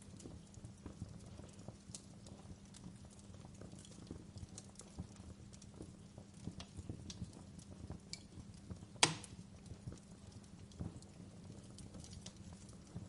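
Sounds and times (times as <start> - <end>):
wood fire crackling: 0.0 - 13.0
loud pop from fire: 9.0 - 9.4.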